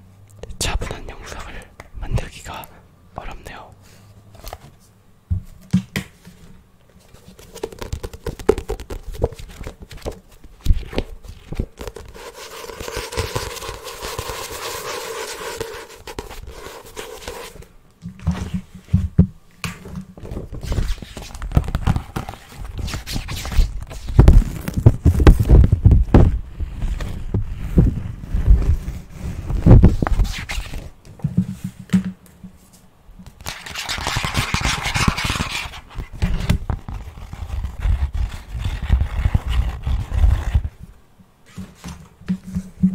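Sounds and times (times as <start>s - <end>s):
fingertips tapping on objects: 7.6s - 9.4s.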